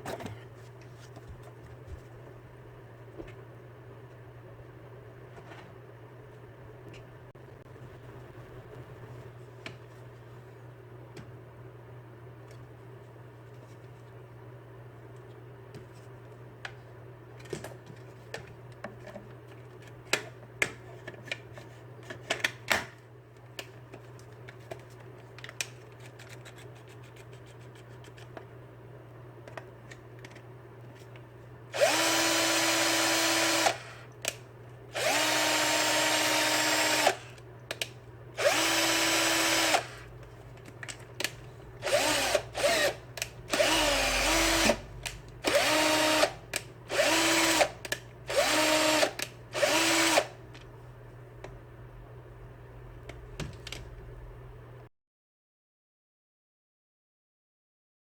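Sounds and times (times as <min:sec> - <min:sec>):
low steady hum: 0:00.0 - 0:54.9
drill trigger blips: 0:31.7 - 0:34.0, 0:35.0 - 0:37.4, 0:38.4 - 0:40.1, 0:41.8 - 0:50.4
drill motor spinning: 0:31.7 - 0:34.1, 0:35.0 - 0:37.4, 0:38.4 - 0:40.1, 0:41.8 - 0:50.4.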